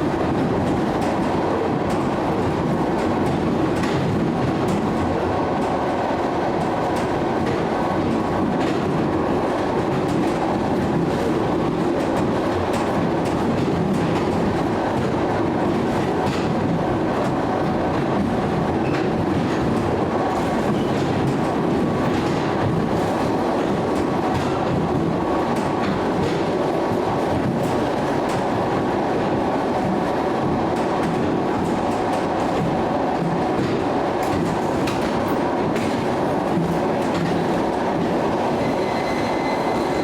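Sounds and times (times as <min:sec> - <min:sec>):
train running on rails: 0:00.0 - 0:40.0.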